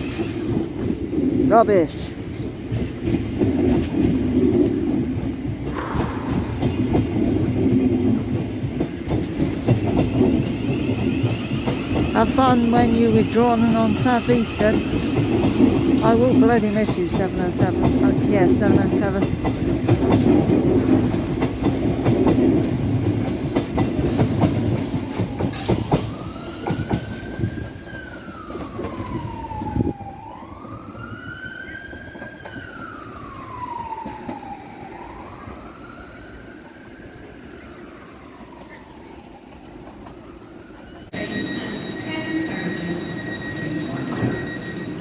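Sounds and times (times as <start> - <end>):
train noise with whining tones: 0.0 - 45.0
distant wailing siren: 5.6 - 9.0, 9.6 - 20.0, 24.4 - 45.0
electric train running: 5.6 - 26.1, 41.1 - 45.0.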